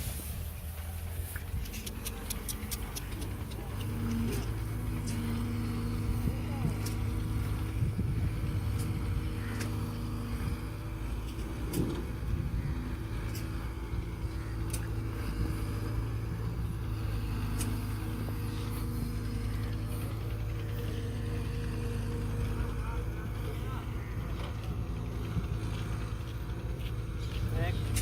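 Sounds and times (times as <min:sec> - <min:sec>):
tractor diesel engine running: 0:00.0 - 0:28.0
sharp clicks or rattles: 0:01.5 - 0:04.2.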